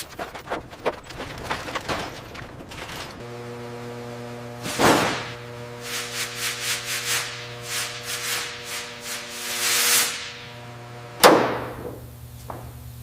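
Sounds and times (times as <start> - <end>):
steady low hum: 0.0 - 13.0
sanding strokes on a surface: 5.8 - 10.4.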